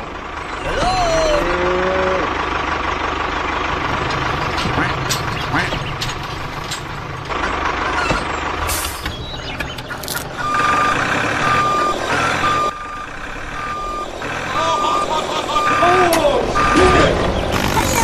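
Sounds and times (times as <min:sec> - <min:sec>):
vehicle engine rumbling: 0:00.0 - 0:18.0
reversing alarm beeping: 0:10.4 - 0:17.2.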